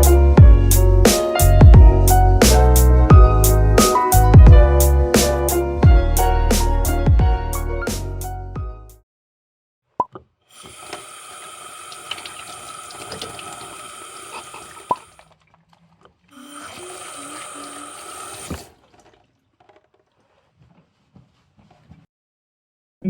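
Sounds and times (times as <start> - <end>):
tap water running into sink: 10.5 - 15.4, 16.3 - 20.0.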